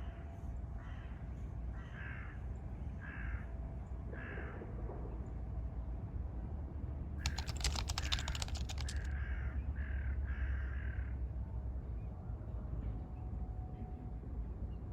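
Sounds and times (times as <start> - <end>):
rapid clicking: 7.2 - 9.1.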